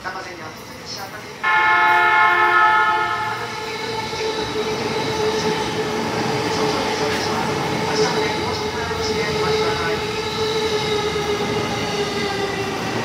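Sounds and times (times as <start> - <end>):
train rail noise: 0.0 - 13.0
train horn blast: 1.4 - 3.6.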